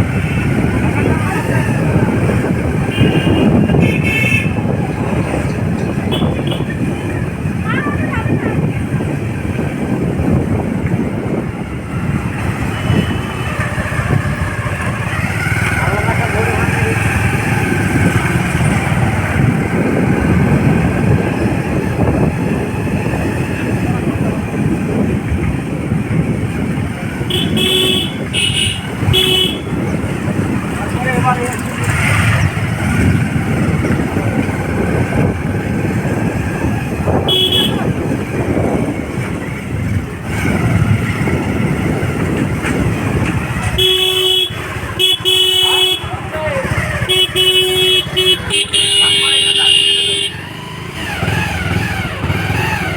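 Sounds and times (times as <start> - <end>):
wind on microphone: 0.0 - 48.9
motorcycle engine rumble: 0.0 - 52.9
vehicle horn honking: 2.9 - 4.7, 6.1 - 6.8, 27.2 - 29.9, 37.2 - 38.0, 43.6 - 50.6.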